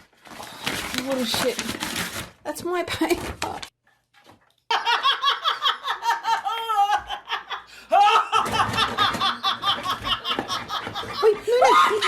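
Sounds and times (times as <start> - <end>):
person laughing hard: 4.7 - 12.0.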